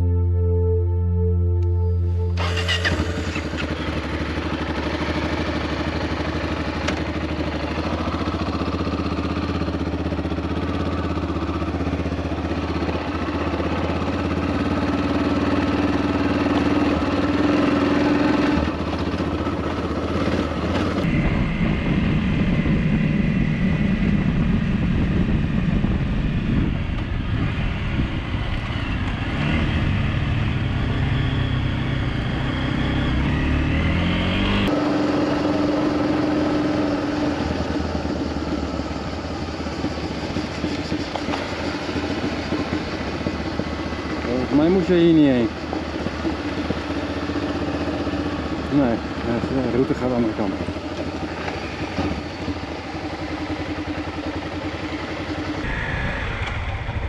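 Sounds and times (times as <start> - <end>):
motorcycle engine running: 2.2 - 57.0
wind noise: 21.0 - 30.4, 55.5 - 57.0.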